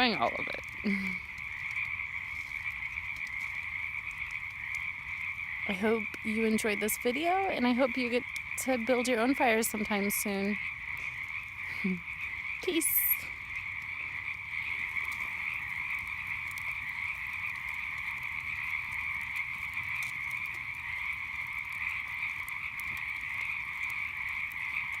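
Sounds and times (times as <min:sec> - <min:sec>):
campfire crackling pops: 0:00.0 - 0:25.0
frogs calling in chorus: 0:00.0 - 0:25.0.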